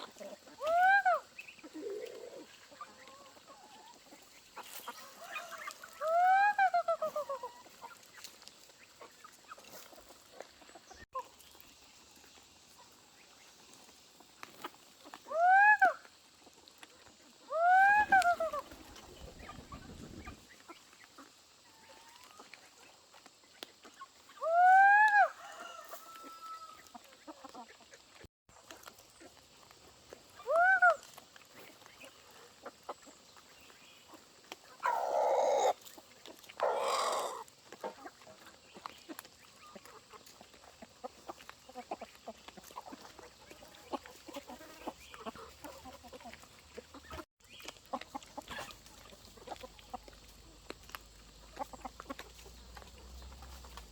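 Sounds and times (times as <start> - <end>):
chicken squawks: 0.0 - 4.0, 4.6 - 8.0, 15.1 - 16.1, 17.4 - 20.4, 24.3 - 26.9, 30.4 - 31.1, 34.8 - 36.0, 36.6 - 38.1
chickens calling: 0.0 - 53.9.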